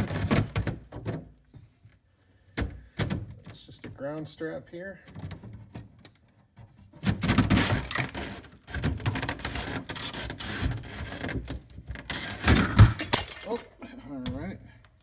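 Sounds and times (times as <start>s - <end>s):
panel scraping and cracking: 5.1s - 13.7s.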